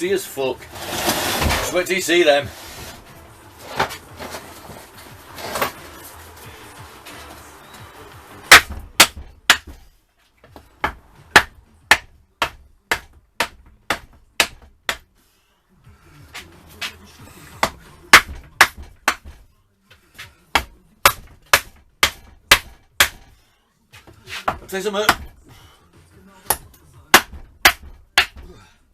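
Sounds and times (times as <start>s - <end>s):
hammer striking metal: 8.5s - 9.8s, 20.6s - 23.4s.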